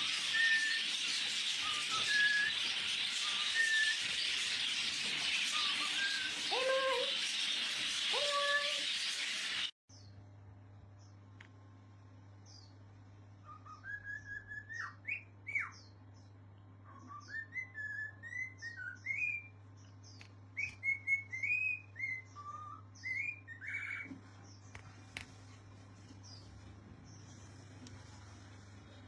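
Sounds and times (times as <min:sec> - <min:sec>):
parrot whistling: 0:00.0 - 0:04.6, 0:05.2 - 0:09.7.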